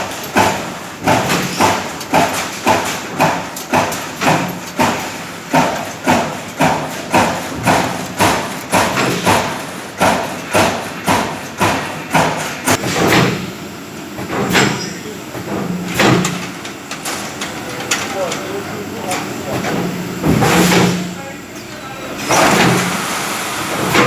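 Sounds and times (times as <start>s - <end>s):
punching machine sharp hits: 0.4s - 13.6s, 14.2s - 17.3s, 19.6s - 21.2s, 22.3s - 23.0s.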